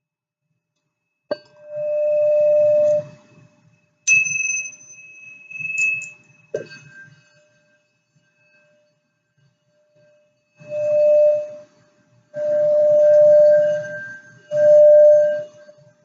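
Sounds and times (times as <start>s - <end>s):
singing bowls ringing: 4.0s - 7.8s, 12.4s - 15.7s.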